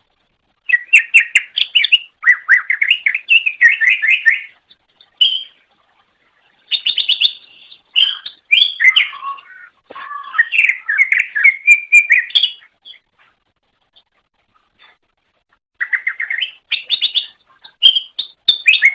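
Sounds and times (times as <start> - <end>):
bird singing whistled notes: 0.6 - 4.6, 5.2 - 5.6, 6.7 - 13.1, 15.8 - 18.9.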